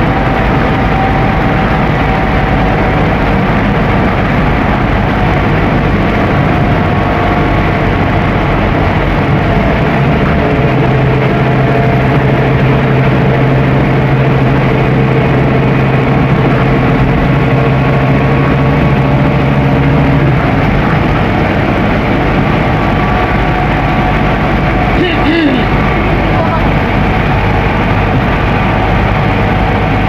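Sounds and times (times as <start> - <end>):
bus diesel engine drone: 0.0 - 30.0
road and body noise: 0.0 - 30.0.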